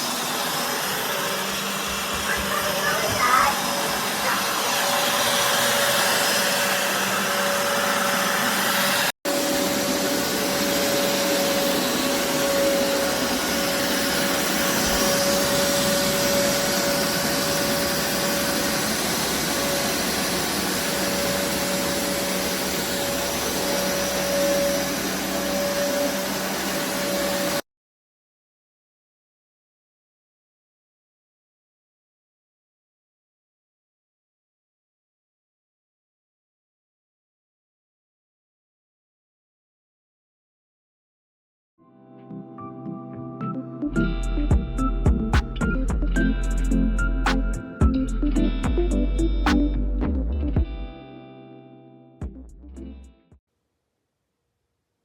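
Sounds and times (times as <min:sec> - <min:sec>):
carpet cleaner suction whoosh: 0:00.0 - 0:27.6
steady motor whine: 0:00.0 - 0:27.6.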